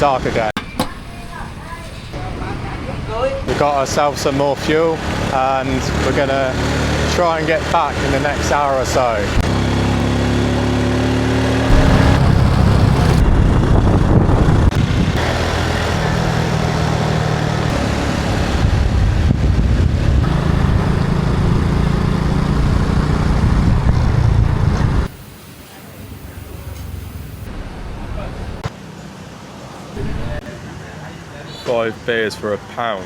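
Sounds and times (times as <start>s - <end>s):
motorbike engine running: 9.4s - 25.2s
steady rushing noise: 11.7s - 15.2s.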